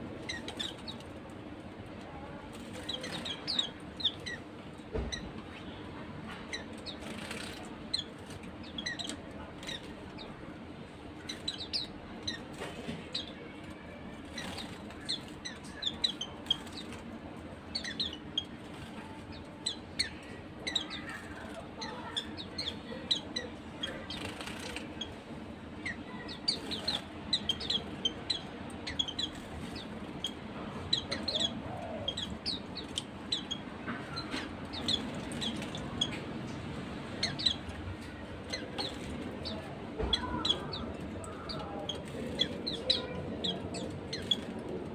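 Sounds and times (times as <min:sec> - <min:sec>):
birds chirping: 0:00.0 - 0:44.9.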